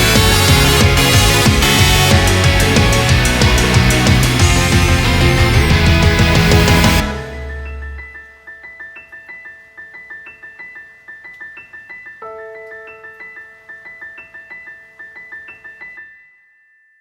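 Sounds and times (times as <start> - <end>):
solo piano playing: 7.0 - 16.2.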